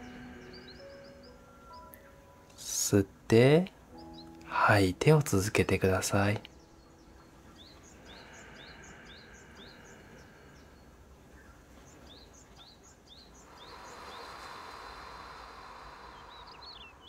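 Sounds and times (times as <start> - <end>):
slow breathing: 0.0 - 2.0, 6.8 - 17.0
faint bird chirping: 0.0 - 17.0.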